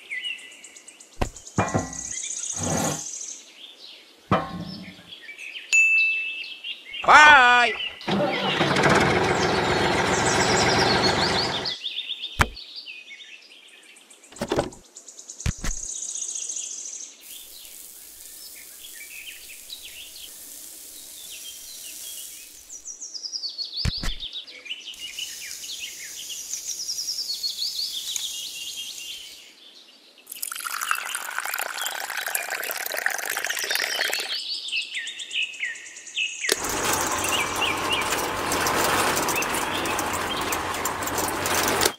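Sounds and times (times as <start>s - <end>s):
birds chirping: 4.3s - 5.3s, 6.7s - 11.8s, 36.5s - 41.9s.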